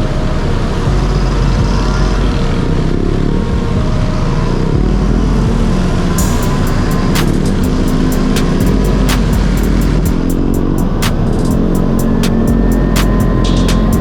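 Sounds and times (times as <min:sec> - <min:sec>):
sharp clicks: 0:06.4 - 0:14.0.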